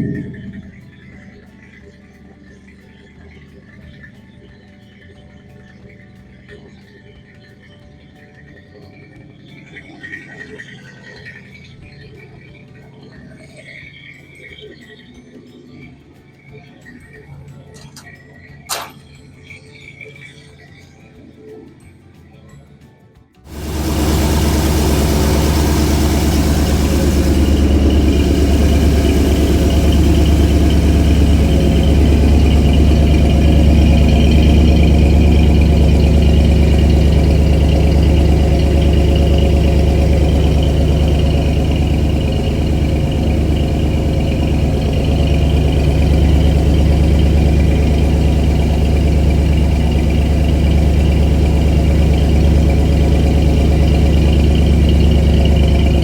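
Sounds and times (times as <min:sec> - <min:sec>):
car engine idling: 0:00.0 - 0:01.0, 0:23.5 - 0:56.0.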